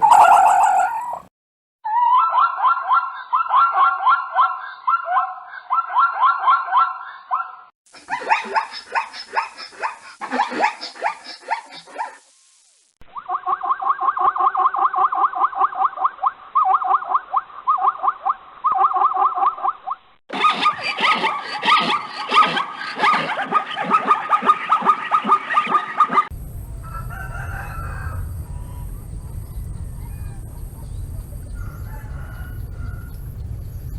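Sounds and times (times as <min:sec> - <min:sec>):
animal yelping cries: 0:00.0 - 0:01.3, 0:01.9 - 0:12.2, 0:20.3 - 0:26.3.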